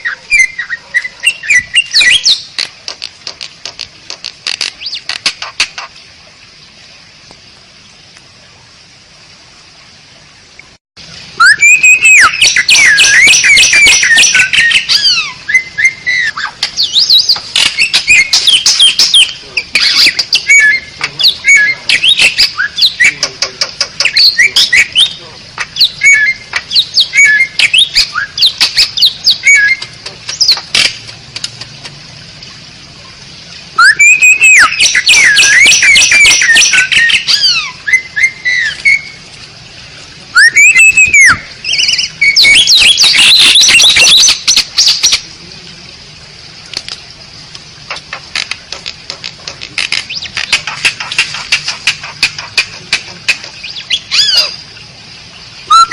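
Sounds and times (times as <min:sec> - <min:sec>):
starling singing: 0:00.0 - 0:02.5, 0:11.4 - 0:30.9, 0:33.8 - 0:39.2, 0:40.4 - 0:45.3, 0:49.8 - 0:54.7, 0:55.6 - 0:55.9.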